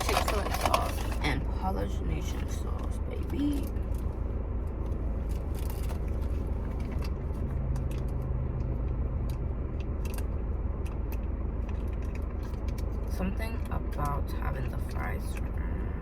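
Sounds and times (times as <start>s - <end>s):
food packaging clicks and crackles: 0.0s - 1.2s
steady low rumble: 0.0s - 16.0s.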